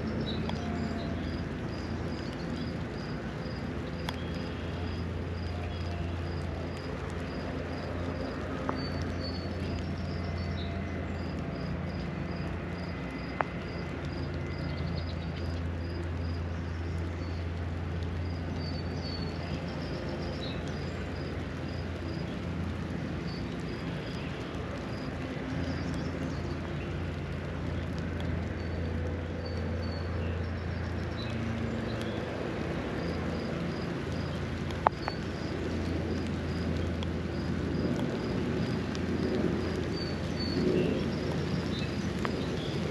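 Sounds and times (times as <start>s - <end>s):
light rain: 0.0s - 42.9s
sharp ticks: 11.2s - 42.8s
small birds chirping: 11.9s - 42.9s.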